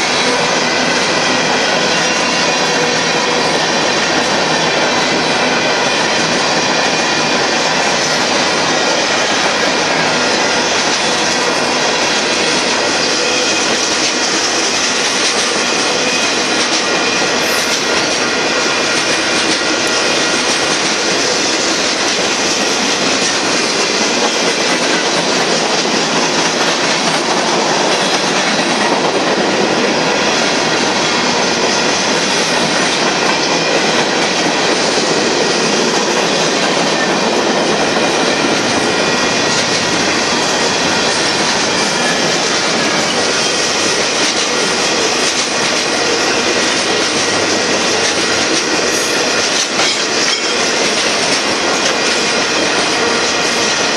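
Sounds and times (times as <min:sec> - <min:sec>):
steel wheels on rail: 0:00.0 - 0:53.9.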